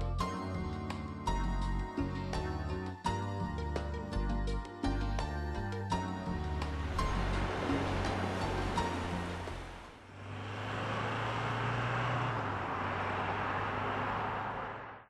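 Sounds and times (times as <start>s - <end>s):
engine and exhaust drone: 6.3s - 15.0s
tyre and road noise: 6.5s - 15.0s.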